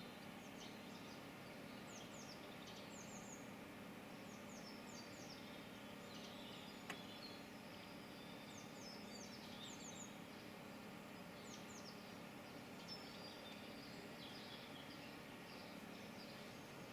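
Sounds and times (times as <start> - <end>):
songbirds chirping faintly: 0.0 - 16.9.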